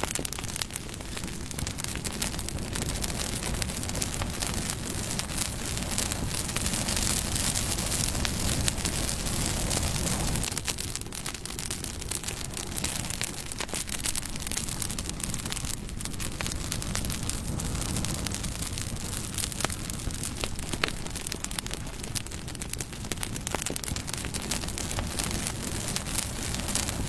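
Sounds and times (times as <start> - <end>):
bonfire flames rushing: 0.0 - 27.0
fire crackling and popping: 0.0 - 27.0.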